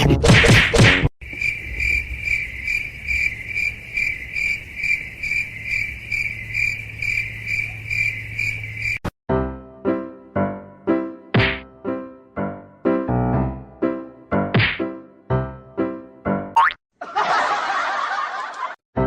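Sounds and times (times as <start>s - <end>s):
insect trilling: 1.2s - 9.0s.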